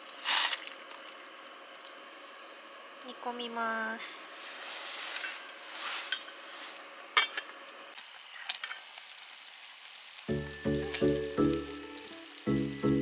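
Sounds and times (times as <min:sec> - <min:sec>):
food sizzling in a pot: 0:04.3 - 0:13.0
background music with pulsed notes: 0:10.3 - 0:13.0.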